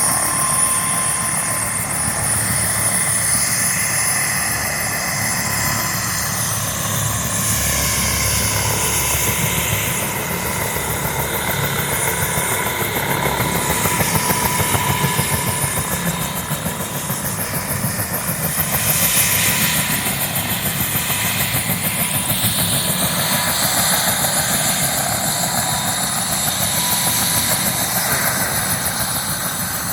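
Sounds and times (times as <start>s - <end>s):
helicopter rotor chop: 0.0s - 29.9s
turbine whine: 0.0s - 29.9s.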